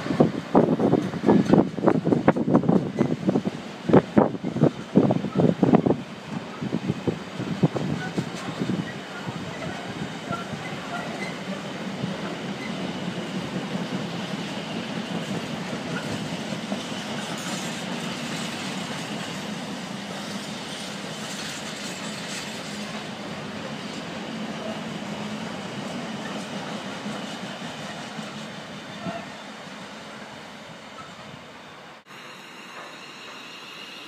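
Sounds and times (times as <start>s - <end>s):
freight train wheels clattering: 7.2s - 29.3s.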